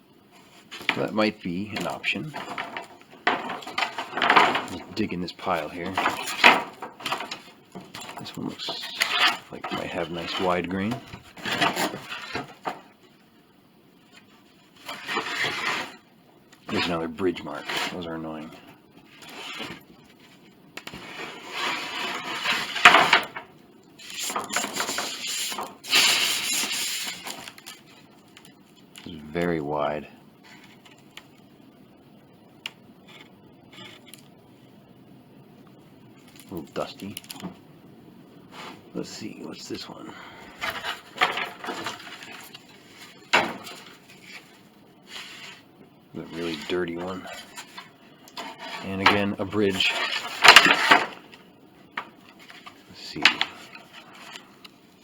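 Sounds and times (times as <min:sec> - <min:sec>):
wooden panels scraping: 0:00.4 - 0:13.0, 0:14.7 - 0:19.8, 0:20.9 - 0:28.1, 0:38.5 - 0:39.4, 0:40.1 - 0:51.4
wooden panels knocking and clattering: 0:01.8 - 0:04.9, 0:05.8 - 0:08.2, 0:09.1 - 0:12.9, 0:22.0 - 0:23.5, 0:40.6 - 0:42.4, 0:43.2 - 0:43.9.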